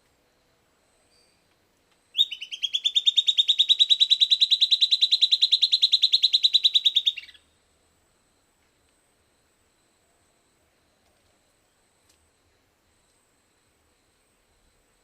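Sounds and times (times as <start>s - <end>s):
bird singing a rapid trill: 2.1s - 7.5s.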